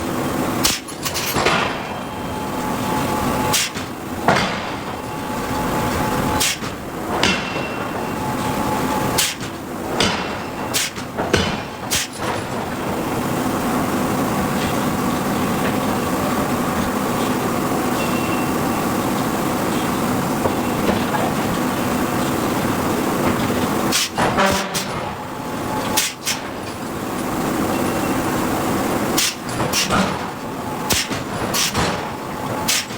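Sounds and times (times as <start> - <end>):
machinery hum: 0.0 - 32.9
forging hammer striking steel: 0.6 - 2.3, 3.5 - 12.8, 23.9 - 26.6.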